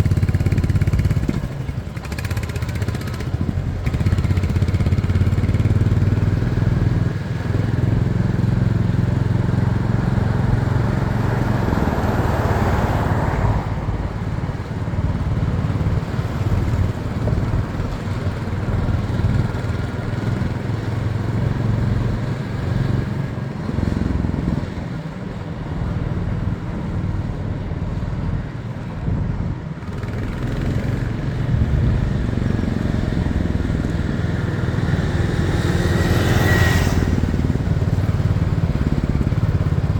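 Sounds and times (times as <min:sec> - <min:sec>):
motorcycle engine running: 0:00.0 - 0:39.9
noisy rushing haze: 0:29.7 - 0:39.9.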